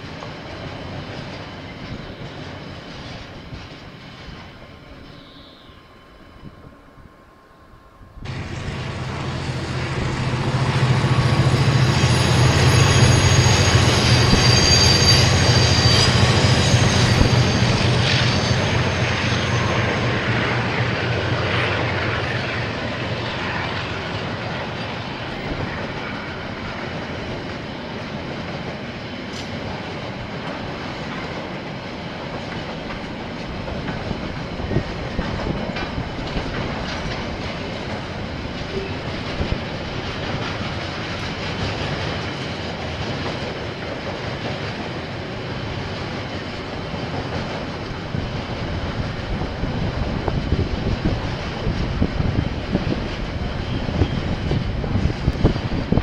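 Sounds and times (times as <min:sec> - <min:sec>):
high wheel squeal: 0:04.9 - 0:06.5, 0:10.9 - 0:20.5
wheels clattering on rails: 0:22.4 - 0:56.0.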